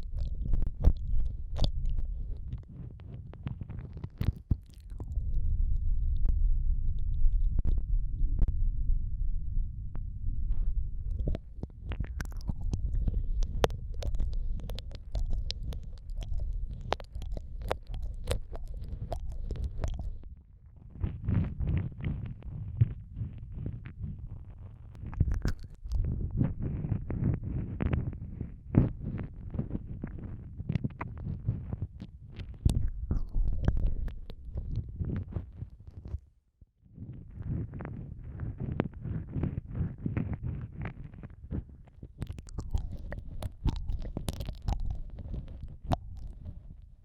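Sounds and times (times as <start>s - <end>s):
wet lip smacks and tongue clicks: 0.0s - 5.2s, 11.1s - 20.3s, 24.9s - 27.2s, 32.0s - 36.1s, 42.1s - 46.9s
low muffled rumble: 0.0s - 36.1s
muffled low thudding: 5.0s - 14.7s.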